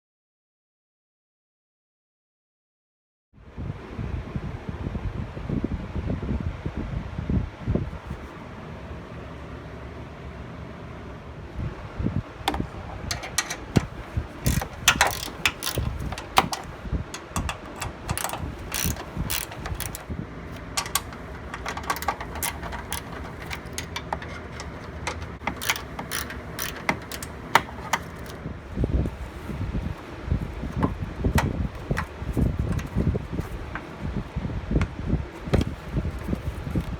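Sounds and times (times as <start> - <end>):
ratchet wrench clicking: 12.5 - 28.4, 29.1 - 33.9.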